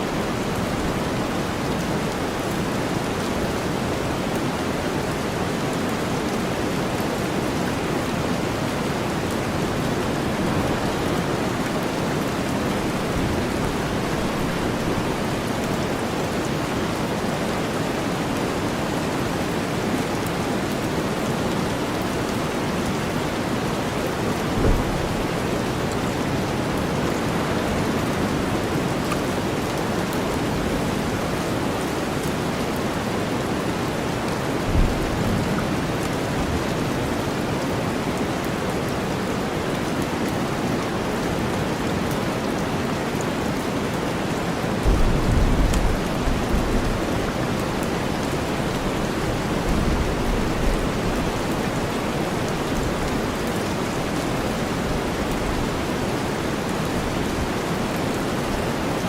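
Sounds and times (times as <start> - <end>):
heavy rain: 0.0 - 59.0
low rumbles of thunder: 24.5 - 25.6, 44.8 - 47.3.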